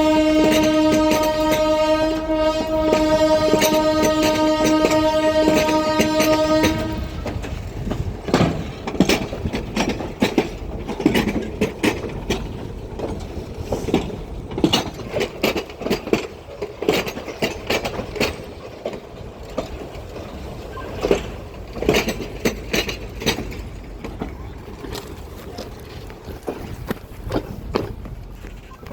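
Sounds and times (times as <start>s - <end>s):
locomotive horn: 0.0s - 7.5s
train low rumble: 0.0s - 28.9s
train wheels clanking: 0.0s - 28.9s.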